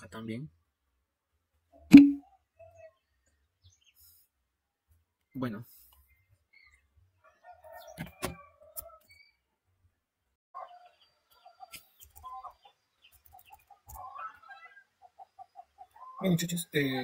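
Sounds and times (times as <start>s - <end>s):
faint bird clucks: 5.9s - 9.4s, 10.6s - 16.5s.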